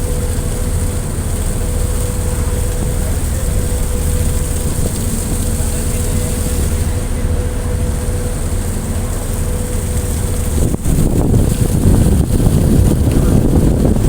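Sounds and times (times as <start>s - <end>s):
ship engine droning: 0.0s - 14.0s
wind buffeting microphone: 0.0s - 14.0s.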